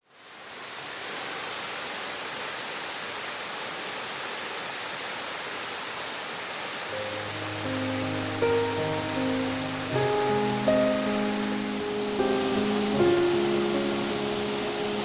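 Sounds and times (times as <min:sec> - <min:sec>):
waterfall roaring: 0:00.2 - 0:15.0.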